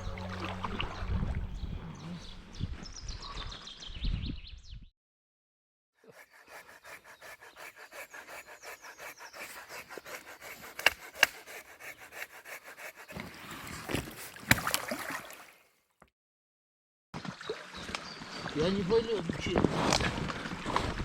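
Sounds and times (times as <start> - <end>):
hand saw cutting wood: 6.0 - 14.8
wood cracking: 9.3 - 13.1.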